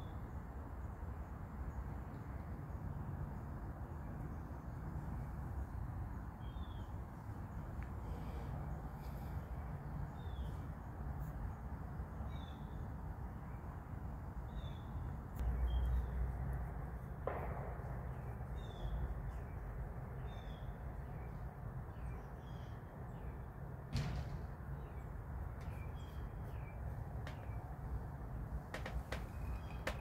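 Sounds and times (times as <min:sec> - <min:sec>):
sharp knock: 0:17.3 - 0:18.4, 0:23.9 - 0:24.8.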